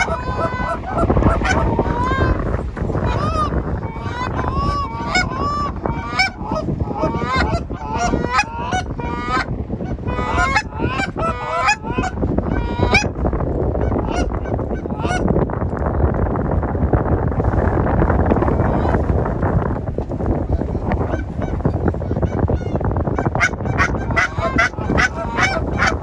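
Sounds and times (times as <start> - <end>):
geese honking and clucking: 0.0 - 13.2, 13.8 - 15.2, 20.6 - 26.0
wind rumble on microphone: 0.0 - 26.0.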